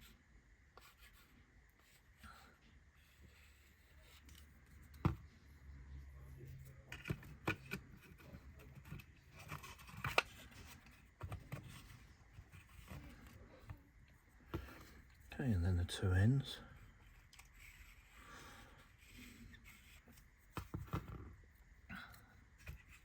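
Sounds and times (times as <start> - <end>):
soft scraping and rubbing: 16.7 - 21.7.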